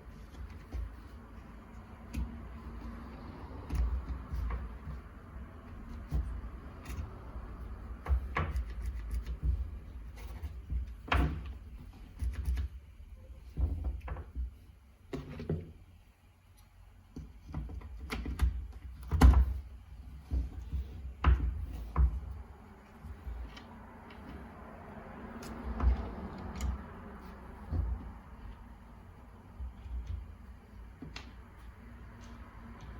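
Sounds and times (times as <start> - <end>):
hard parts knocking and clicking: 25.3 - 32.9.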